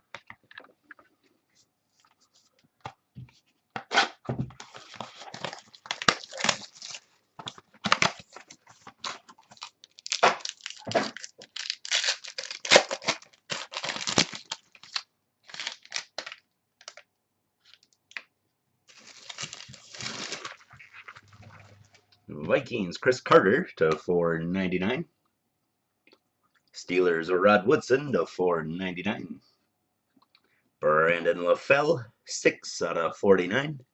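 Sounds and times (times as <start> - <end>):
foil wrapper tearing and crinkling: 4.6 - 7.1, 7.8 - 17.0, 18.9 - 21.3.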